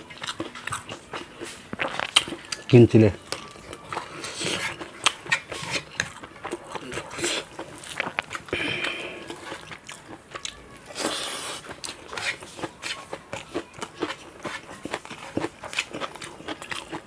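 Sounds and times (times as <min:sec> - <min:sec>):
person chewing crunchy food: 0:00.0 - 0:17.0.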